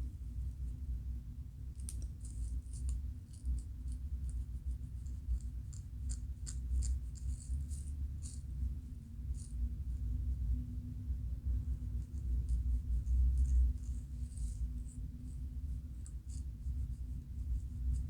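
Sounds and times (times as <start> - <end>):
low steady rumble: 0.0 - 18.0
scalp scratching: 5.0 - 8.6, 12.0 - 18.0.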